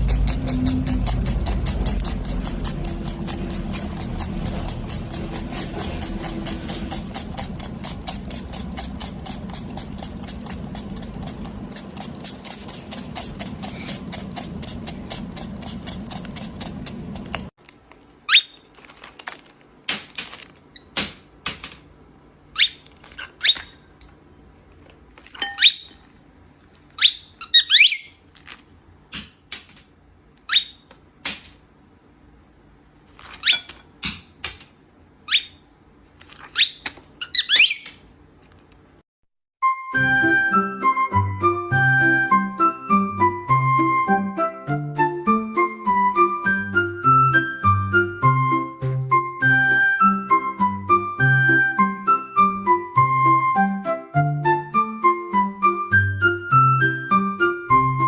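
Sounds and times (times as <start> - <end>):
rapid even clicking: 0.0 - 17.5
cockatiel chirps: 18.3 - 18.6, 22.6 - 23.8, 25.4 - 26.0, 27.0 - 28.2, 30.5 - 30.9, 35.3 - 35.6, 36.5 - 38.0.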